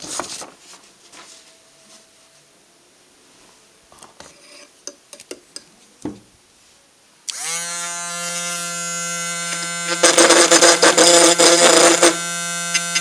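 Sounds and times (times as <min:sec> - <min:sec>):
loud steady buzzing tone: 0:07.3 - 0:13.0.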